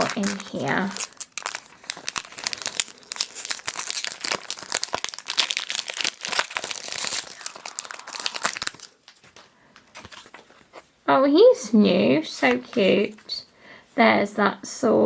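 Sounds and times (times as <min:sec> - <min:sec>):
foil pack crinkling and tearing: 0:00.0 - 0:10.5.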